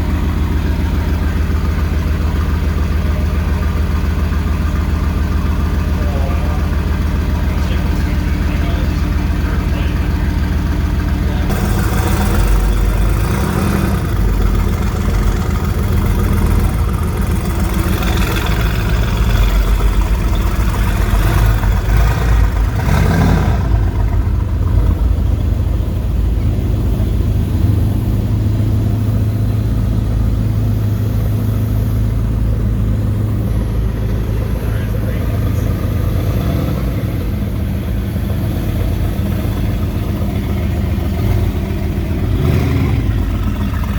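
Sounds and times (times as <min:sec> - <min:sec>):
car engine revving and idling: 0:00.0 - 0:43.9.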